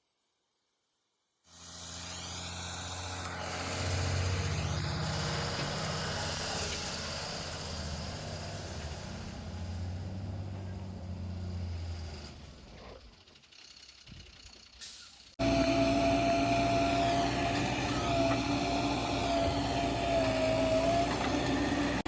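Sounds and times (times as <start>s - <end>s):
diesel engine working under load: 1.6s - 22.0s.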